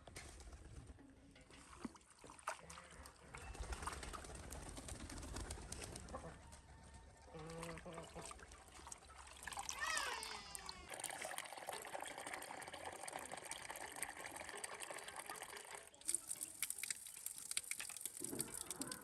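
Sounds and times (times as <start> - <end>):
water trickling and splashing: 1.4 - 4.7, 7.2 - 19.0
sharp water drips: 7.5 - 19.0.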